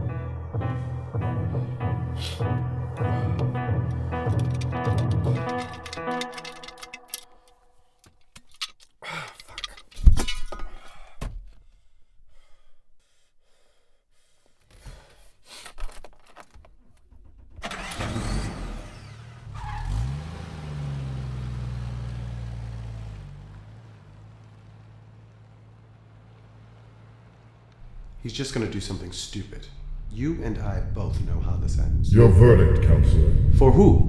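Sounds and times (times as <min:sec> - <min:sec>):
car engine starting and running: 0:01.2 - 0:07.3, 0:16.3 - 0:33.3
clicks and rattles inside car: 0:04.3 - 0:07.2, 0:15.7 - 0:18.1.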